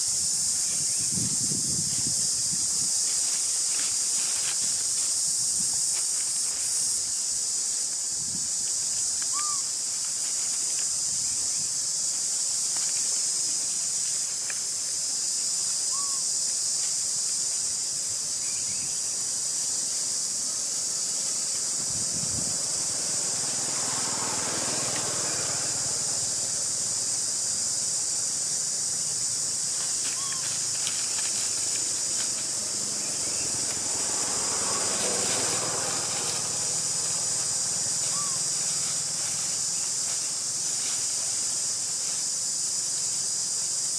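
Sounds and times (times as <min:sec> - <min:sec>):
cicadas droning: 0:00.0 - 0:43.9
rustling noise: 0:01.7 - 0:07.1, 0:29.6 - 0:32.6, 0:37.3 - 0:42.4.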